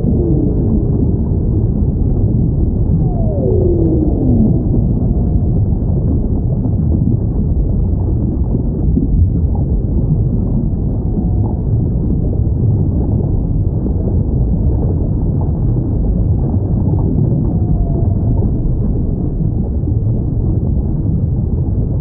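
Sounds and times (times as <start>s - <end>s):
faint whale calls: 0.0s - 6.4s, 10.6s - 12.5s, 17.2s - 19.1s
deep underwater rumble: 0.0s - 22.0s.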